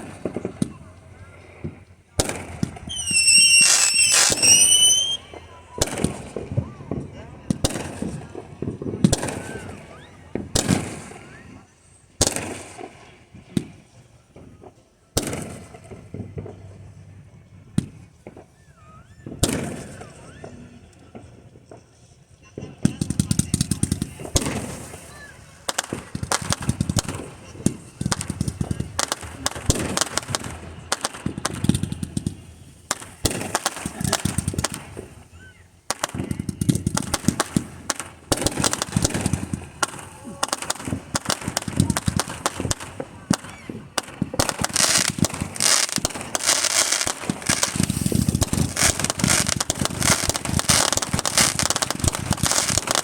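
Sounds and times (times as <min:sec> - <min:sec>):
crackling firework pops: 0:00.0 - 0:16.9, 0:17.7 - 0:53.0
firework shell bursts: 0:02.2 - 0:05.3, 0:23.1 - 0:53.0
wavering firework whistle: 0:02.9 - 0:05.4.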